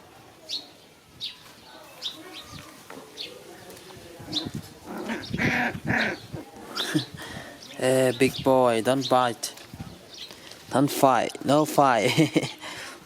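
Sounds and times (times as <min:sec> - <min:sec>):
puppies growling and snarling: 0:04.2 - 0:07.1.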